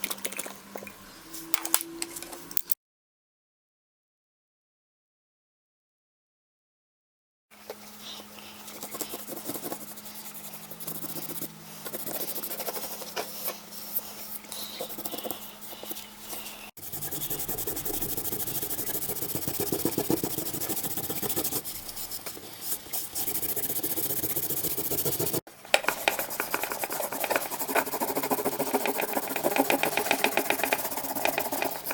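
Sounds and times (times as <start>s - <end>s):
faint steady hum: 7.6s - 31.9s
abrasive scrubbing strokes: 16.8s - 31.9s.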